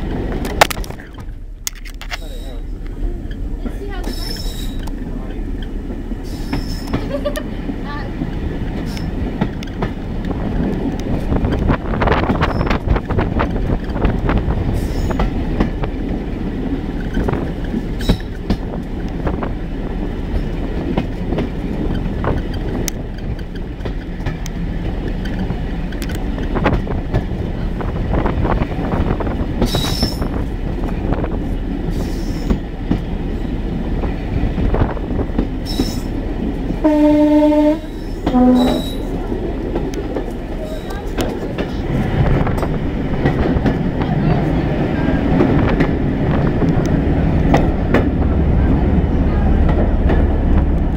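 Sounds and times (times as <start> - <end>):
train running rumble: 0.0 - 50.9
wheels clicking over rail joints: 0.0 - 50.9
two-tone train horn: 36.8 - 39.1.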